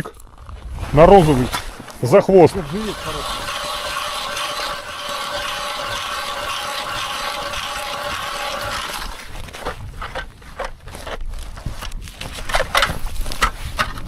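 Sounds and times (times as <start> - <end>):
geared mechanism whirring: 2.5 - 10.2.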